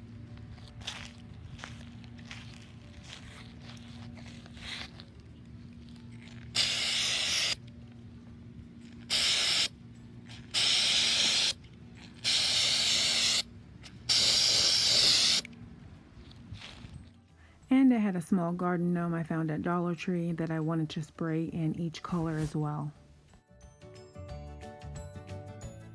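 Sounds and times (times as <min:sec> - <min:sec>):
aerosol can spraying: 0:06.5 - 0:07.6, 0:09.1 - 0:09.7, 0:10.3 - 0:11.6, 0:12.2 - 0:15.5.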